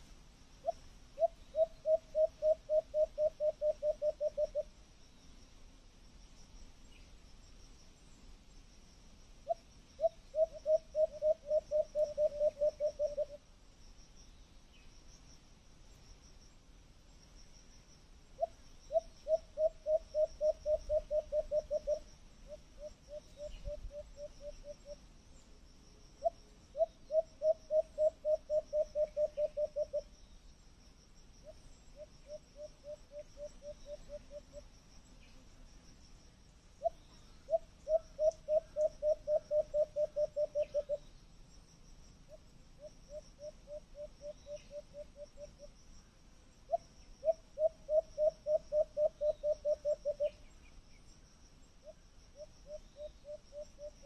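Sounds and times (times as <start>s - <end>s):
insects trilling: 0.0s - 54.0s
bird low hooting: 0.6s - 4.7s, 9.4s - 13.4s, 18.4s - 25.0s, 26.2s - 30.1s, 36.8s - 41.1s, 42.3s - 45.7s, 46.7s - 50.5s, 51.8s - 54.0s.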